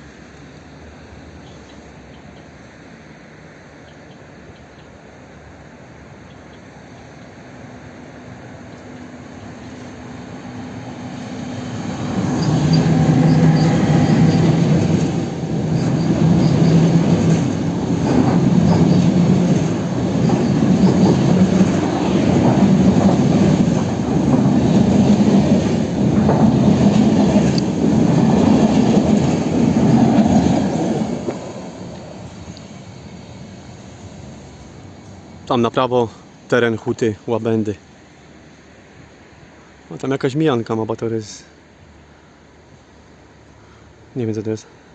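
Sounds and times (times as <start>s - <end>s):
train passing at speed: 0.0s - 40.0s
wheels on rails: 8.7s - 35.2s.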